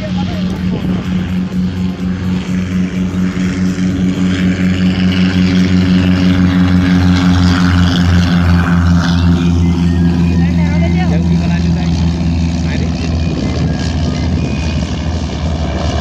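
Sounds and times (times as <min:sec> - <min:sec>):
airplane engine droning: 0:00.0 - 0:16.0
rush of noise: 0:00.0 - 0:16.0.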